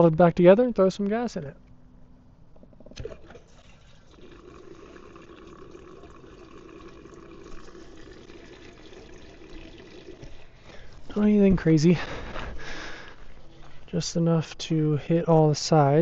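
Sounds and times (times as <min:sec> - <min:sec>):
gasoline pouring into metal tank: 0:03.0 - 0:11.0.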